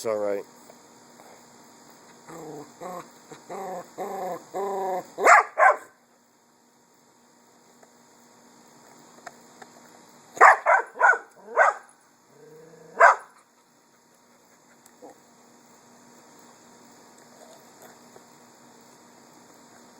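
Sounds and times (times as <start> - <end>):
dog grumbling low: 2.3 - 5.1, 12.3 - 13.0
dog barking: 5.2 - 6.0, 10.4 - 11.9, 12.9 - 13.4.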